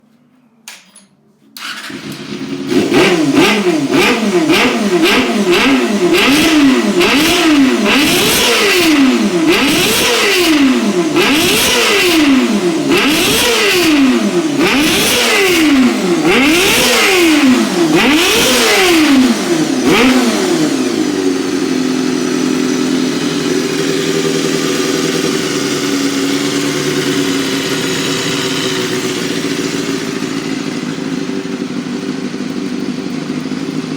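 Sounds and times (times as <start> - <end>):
motorcycle engine idling: 1.6 - 33.9
motorcycle engine revving: 1.6 - 33.9
motorcycle engine starting: 1.6 - 33.9.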